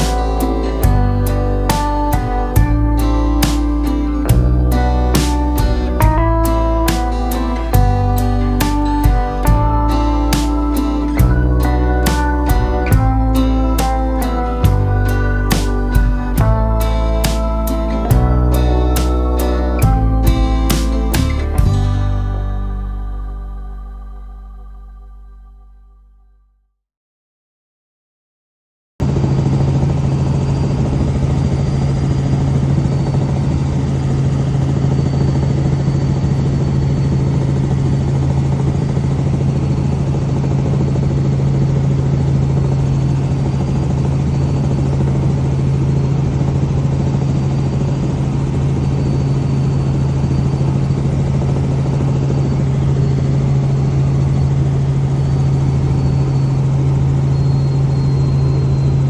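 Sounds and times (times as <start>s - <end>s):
faint high whine: 0.0s - 26.1s.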